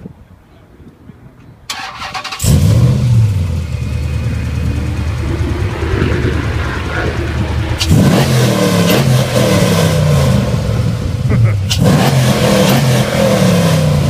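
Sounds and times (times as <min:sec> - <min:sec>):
car engine idling and revving: 0:01.8 - 0:14.0.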